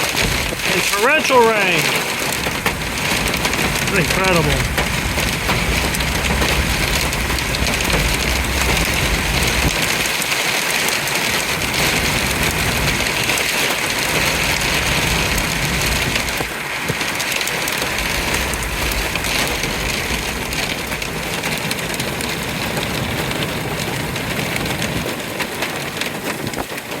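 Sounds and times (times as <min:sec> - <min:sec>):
torrential rain and wind: 0:00.0 - 0:27.0
low rumble: 0:01.9 - 0:10.3.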